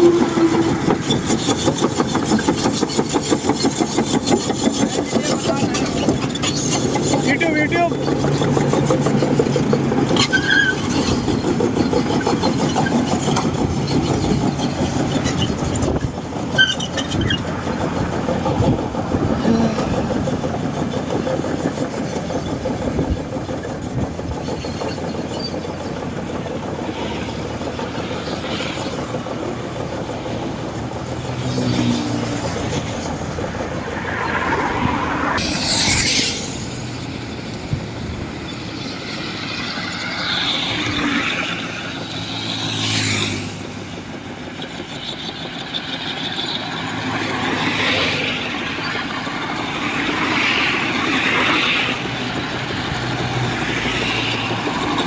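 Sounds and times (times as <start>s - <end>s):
high metallic squeals: 0.0s - 43.6s
excavator diesel engine running: 0.0s - 55.0s.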